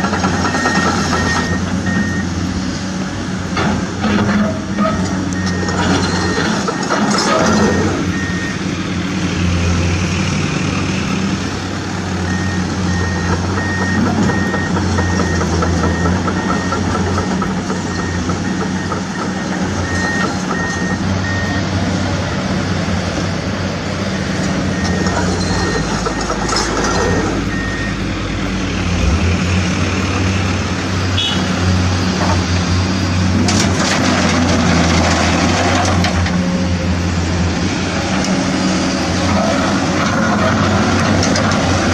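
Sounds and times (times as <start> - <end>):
reversing alarm beeping: 0.0 - 2.6, 4.7 - 8.7, 12.3 - 21.8, 24.7 - 29.2
truck engine running: 0.0 - 41.9.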